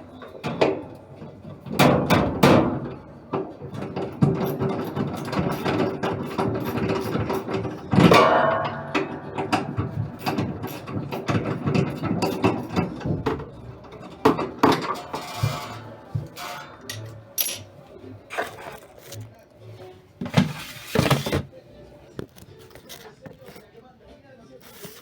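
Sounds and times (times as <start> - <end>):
hand tools clanking on metal parts: 0.1 - 19.3.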